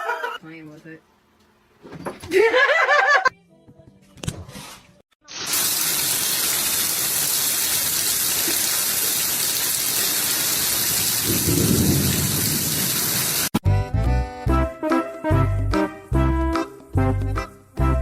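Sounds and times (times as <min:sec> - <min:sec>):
music: 0:03.3 - 0:05.0, 0:13.6 - 0:18.0
heavy rain falling: 0:05.7 - 0:13.6
low rumble of thunder: 0:11.2 - 0:13.0.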